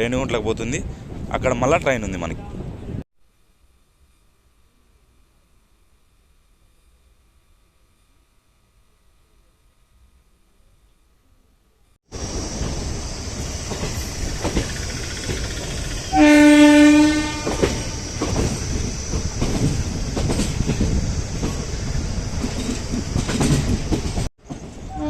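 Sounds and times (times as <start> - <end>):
train wheels clattering: 12.2 - 25.0
locomotive horn: 16.1 - 18.0.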